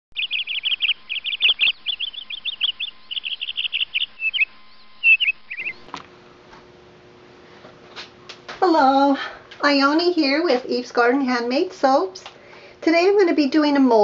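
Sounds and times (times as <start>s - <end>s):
songbird singing: 0.1s - 5.9s.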